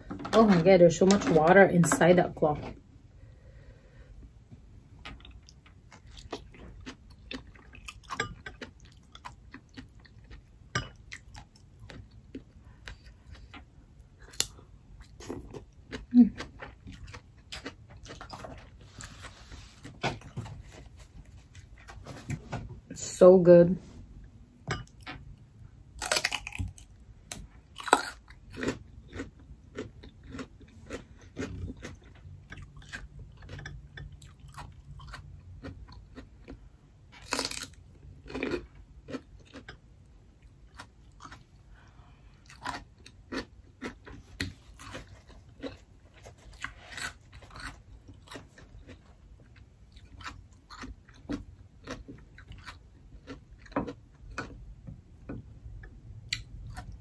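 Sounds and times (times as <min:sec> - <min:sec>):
radish crunching and chewing: 0:05.1 - 0:20.4, 0:25.9 - 0:54.7.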